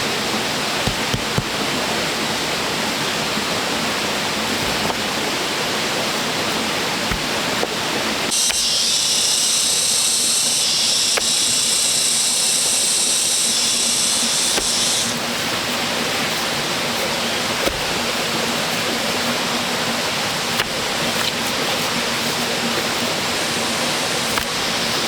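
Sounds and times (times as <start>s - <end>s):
high-pitched buzz: 8.3s - 15.2s.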